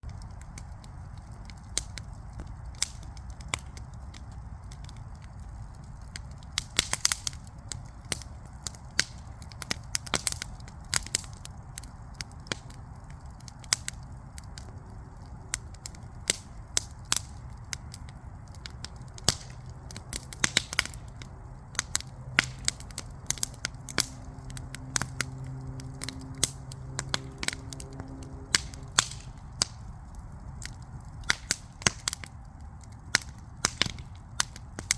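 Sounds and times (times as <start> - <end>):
wood fire crackling and popping: 0.0 - 34.9
steady low rumble: 7.4 - 34.9
faint low hum: 11.6 - 31.8.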